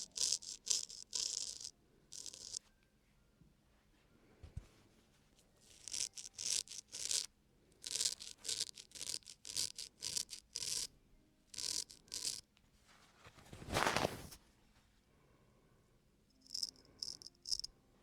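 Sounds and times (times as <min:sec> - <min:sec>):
razor scraping skin: 0:00.0 - 0:02.6, 0:05.7 - 0:10.9, 0:11.5 - 0:12.4.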